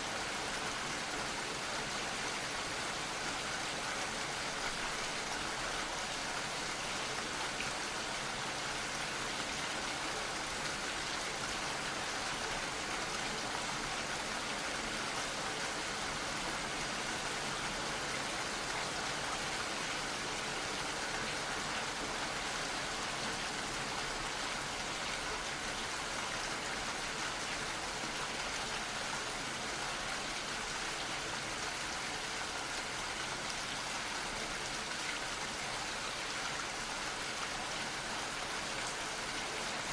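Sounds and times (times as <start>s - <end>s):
gentle steady rainfall: 0.0s - 39.9s.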